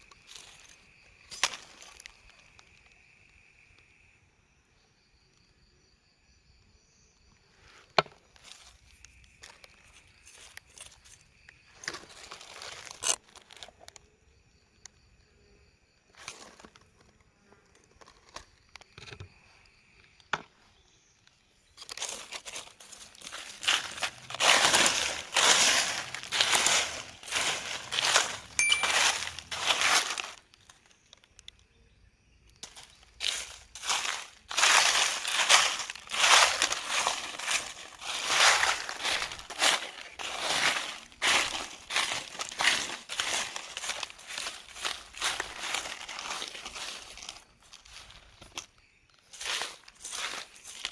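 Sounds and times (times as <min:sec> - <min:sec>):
rustling and crinkling: 0:00.0 - 0:03.0, 0:07.6 - 0:14.0, 0:16.1 - 0:19.4, 0:21.7 - 0:31.6, 0:32.6 - 0:50.9.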